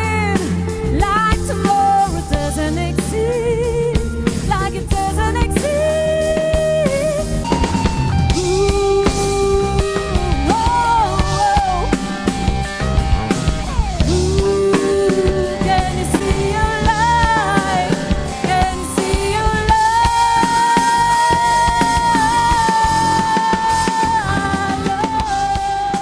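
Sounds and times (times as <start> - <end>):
rock band playing: 0.0 - 26.0
woman singing long notes: 14.1 - 26.0.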